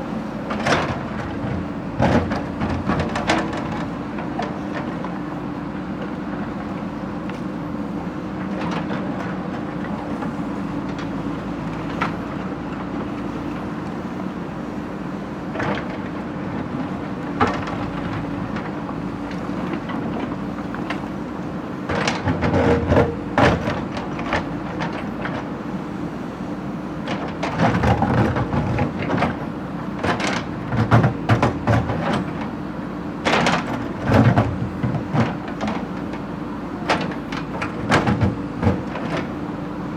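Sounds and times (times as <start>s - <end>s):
heavy machine engine running: 0.0s - 39.9s.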